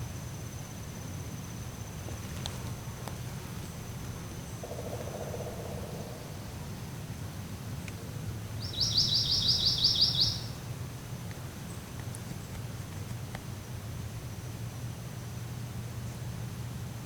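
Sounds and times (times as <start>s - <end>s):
low outdoor background noise: 0.0s - 17.0s
songbird trilling: 3.6s - 6.9s, 8.6s - 10.6s.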